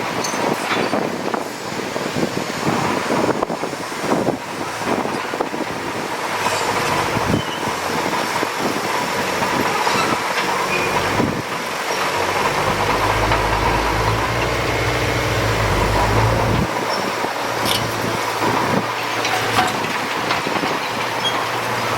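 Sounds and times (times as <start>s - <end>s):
diesel machinery engine running: 5.8s - 21.9s
metallic clanks and knocks: 12.0s - 16.7s, 19.2s - 21.1s.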